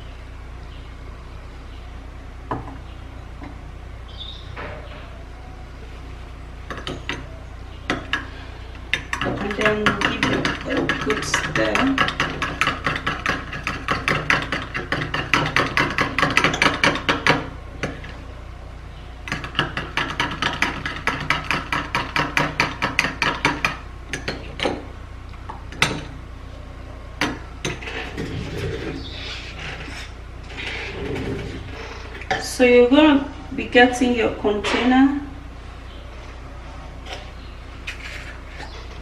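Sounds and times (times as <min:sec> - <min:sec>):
spoon stirring in a bowl: 0:06.7 - 0:18.2.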